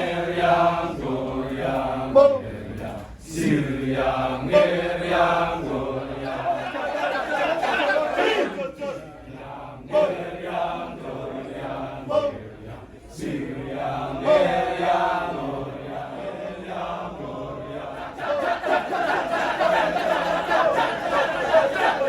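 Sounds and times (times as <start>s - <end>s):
chorus of voices chanting: 0.0s - 22.0s.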